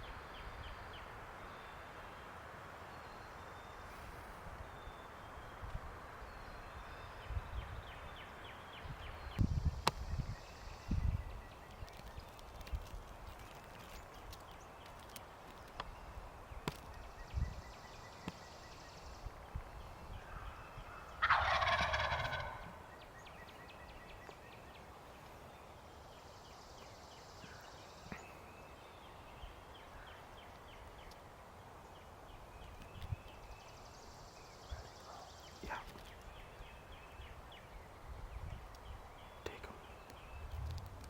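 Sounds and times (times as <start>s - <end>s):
turkey gobbling: 21.2s - 22.8s.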